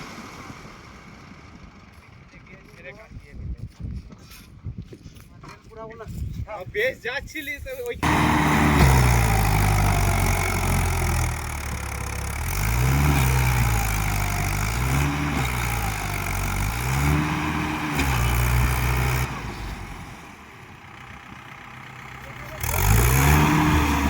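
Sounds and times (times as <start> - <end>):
tractor diesel engine revving: 0.0 - 2.4, 8.0 - 24.0.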